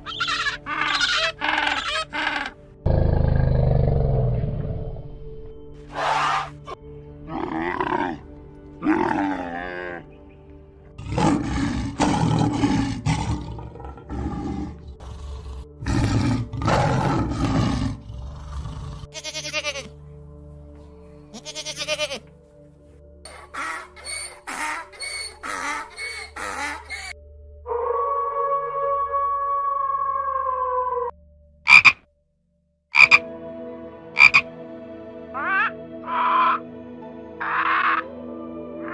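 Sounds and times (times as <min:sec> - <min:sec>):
background music: 0:00.0 - 0:38.9
tiger growling and roaring: 0:02.8 - 0:06.6, 0:07.2 - 0:10.0, 0:11.0 - 0:19.1
camels roaring: 0:05.9 - 0:06.6, 0:11.0 - 0:19.1
goat bleating: 0:19.1 - 0:19.9, 0:21.3 - 0:22.3
wolf howling: 0:27.7 - 0:31.1
short double croaks: 0:31.7 - 0:32.0, 0:33.0 - 0:33.2, 0:34.2 - 0:34.5.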